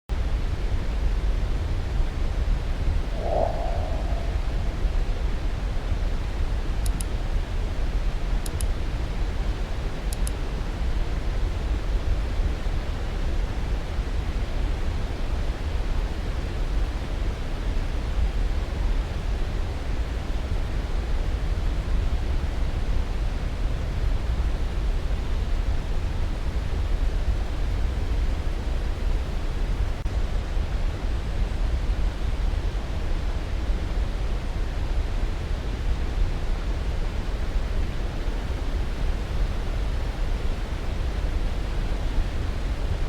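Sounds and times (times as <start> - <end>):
rushing white noise: 3.2 - 5.3.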